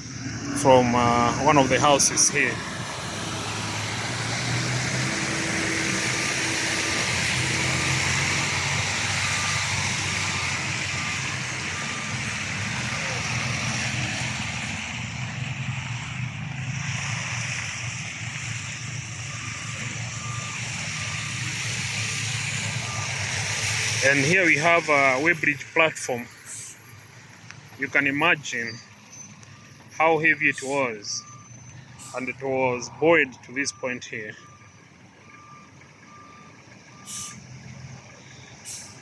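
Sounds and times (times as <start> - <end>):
diesel engine running: 0.0 - 39.0
reversing alarm beeping: 4.9 - 14.2, 18.7 - 23.3, 27.7 - 39.0.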